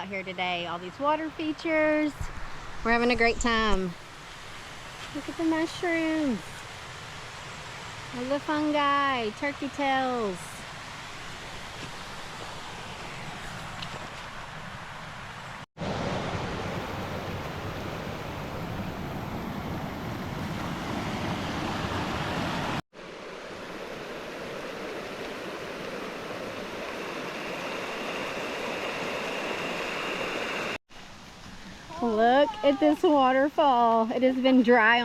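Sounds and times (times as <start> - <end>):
water rushing in creeks: 0.1 - 35.0.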